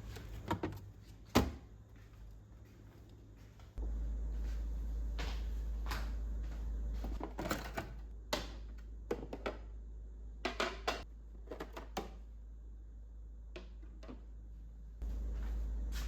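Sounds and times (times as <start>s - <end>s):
food containers clicking and knocking: 7.1s - 9.8s, 10.4s - 12.2s.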